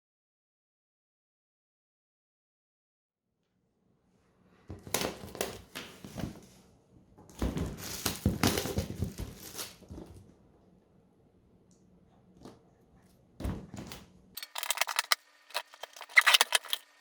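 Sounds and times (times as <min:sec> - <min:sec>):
packaging crinkling and tearing: 0:14.4 - 0:16.9.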